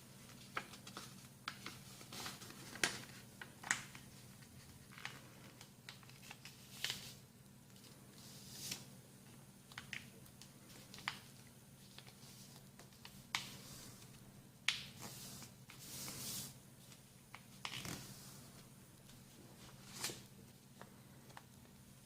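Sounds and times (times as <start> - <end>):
paper being folded and creased: 0.3 - 7.2, 10.7 - 16.5, 17.3 - 18.2.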